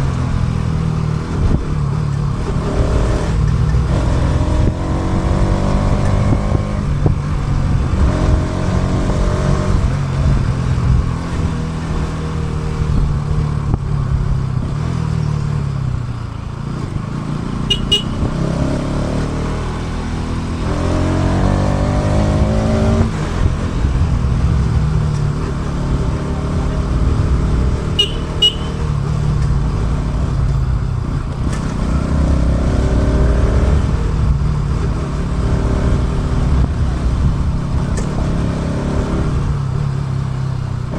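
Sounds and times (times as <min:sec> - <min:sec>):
motorcycle engine revving: 0:00.0 - 0:15.9, 0:16.7 - 0:40.9
low road rumble: 0:00.0 - 0:40.9
short high beeps: 0:17.7 - 0:18.3, 0:28.0 - 0:28.9.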